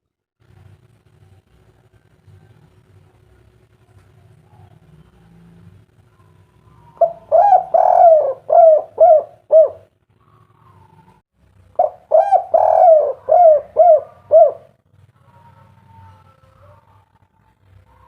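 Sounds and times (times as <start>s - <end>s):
dove cooing: 4.5s - 18.0s.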